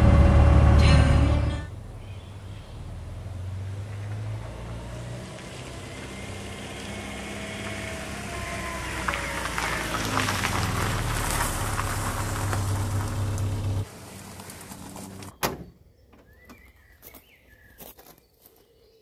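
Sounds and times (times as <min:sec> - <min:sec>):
car engine running: 0:00.0 - 0:15.3
tires rolling over gravel: 0:01.8 - 0:15.4
bird chirps: 0:15.3 - 0:19.0.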